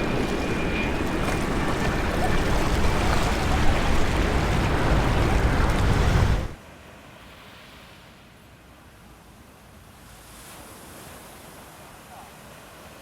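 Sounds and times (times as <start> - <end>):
jet engine rumble: 0.0 - 6.6
surf: 0.0 - 6.6
wind: 0.0 - 13.0.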